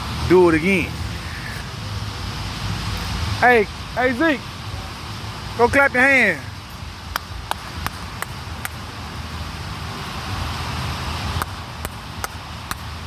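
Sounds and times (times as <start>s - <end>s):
steady background hum: 0.0s - 13.0s
hand claps: 7.1s - 8.8s, 11.4s - 12.9s.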